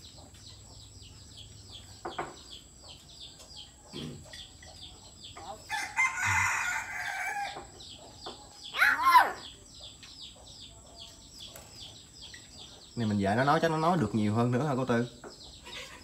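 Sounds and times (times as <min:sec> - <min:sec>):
faint high bird chirps: 0:00.0 - 0:16.0
loud harsh bird call: 0:08.7 - 0:09.6.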